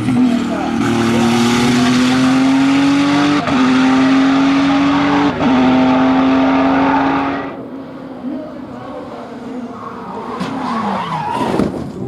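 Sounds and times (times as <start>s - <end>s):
race car engine accelerating: 0.0s - 7.6s.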